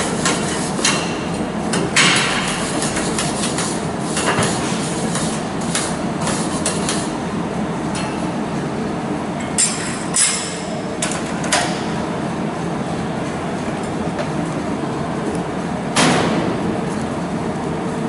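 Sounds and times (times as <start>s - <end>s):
noisy background: 0.0s - 18.0s.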